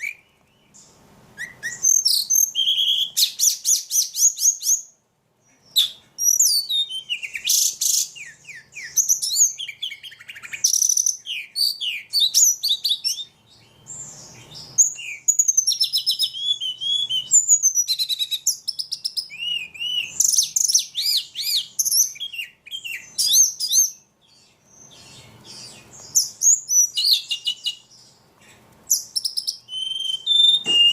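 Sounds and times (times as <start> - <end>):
songbird singing: 0.0 - 30.9.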